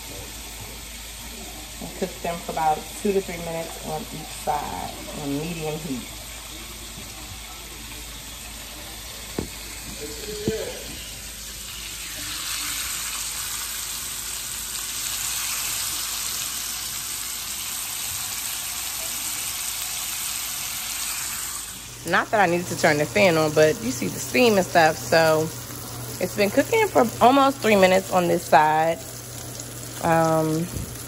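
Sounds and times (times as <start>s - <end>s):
meat sizzling in a pan: 0.0s - 31.0s.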